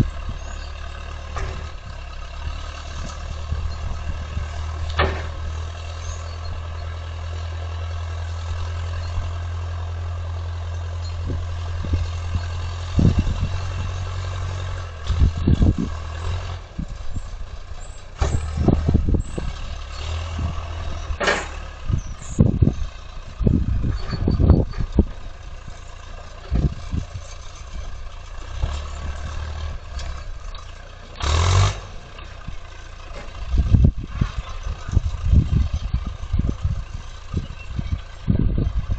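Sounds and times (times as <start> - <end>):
heavy equipment engine running: 0.0 - 38.9
knocks and clanks: 1.2 - 1.8, 4.8 - 5.6, 18.2 - 19.0, 21.1 - 21.7.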